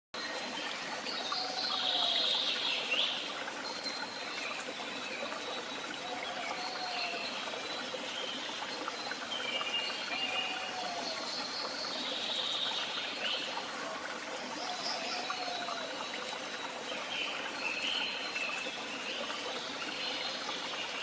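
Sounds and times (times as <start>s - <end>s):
trickling water: 0.2s - 21.0s
woodland birds singing: 1.1s - 13.7s, 14.5s - 21.0s.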